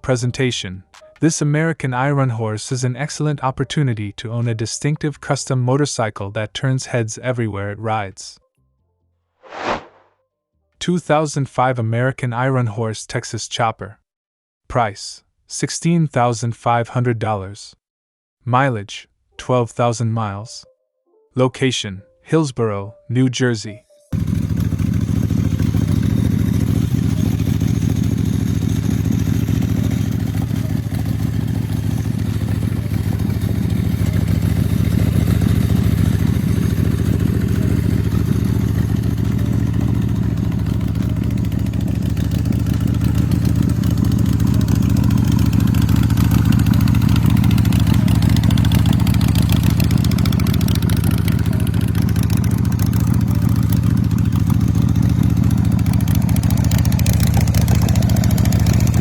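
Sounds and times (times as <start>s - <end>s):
motorcycle engine running: 24.2s - 59.0s.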